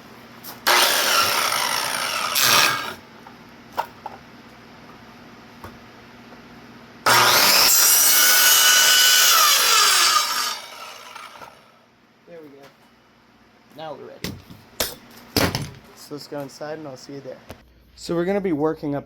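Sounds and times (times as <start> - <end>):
power saw cutting wood: 0.6 - 3.0, 7.1 - 11.7.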